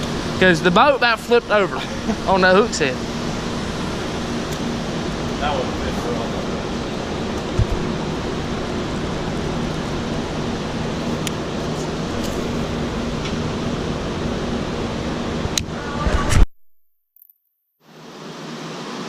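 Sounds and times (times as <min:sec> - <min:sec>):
water rushing: 0:00.0 - 0:16.0
wind: 0:00.0 - 0:16.5, 0:17.8 - 0:19.0.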